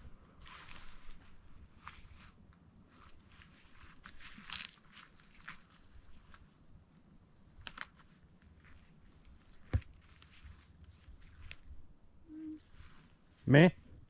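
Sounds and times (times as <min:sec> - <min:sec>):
footsteps crunching on frozen ground: 0:03.0 - 0:06.0.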